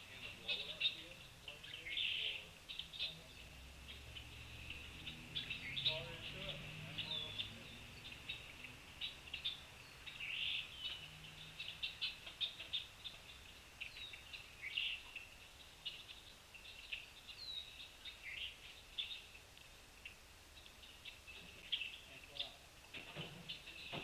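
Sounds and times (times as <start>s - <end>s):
birds chipping and twittering: 0.0s - 24.0s.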